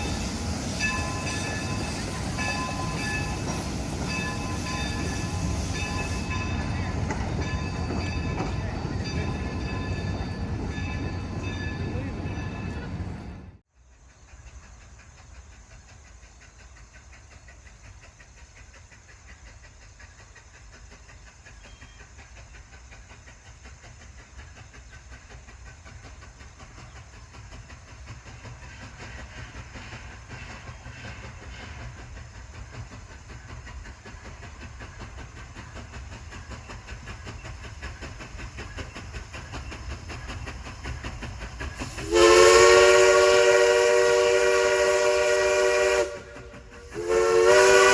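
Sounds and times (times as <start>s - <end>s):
steam locomotive whistle: 0.0s - 6.9s, 41.6s - 47.9s
steam train rumbling: 0.0s - 47.9s.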